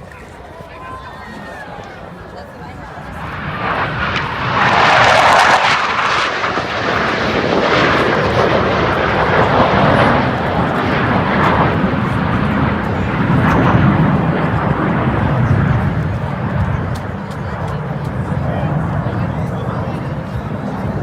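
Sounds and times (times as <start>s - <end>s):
jets passing overhead: 2.0s - 21.0s.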